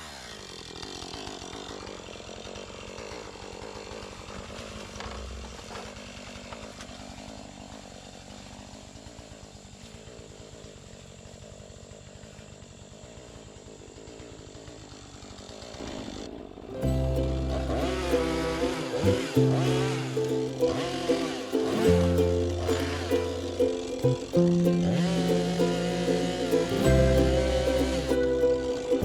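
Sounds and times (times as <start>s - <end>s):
chainsaw running: 0.0s - 29.0s
loud music: 16.8s - 29.0s.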